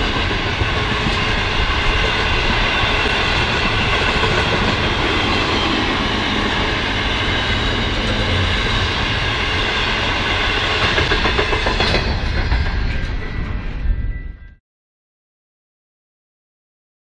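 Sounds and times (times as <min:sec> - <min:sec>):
freight train rolling past: 0:00.0 - 0:14.6.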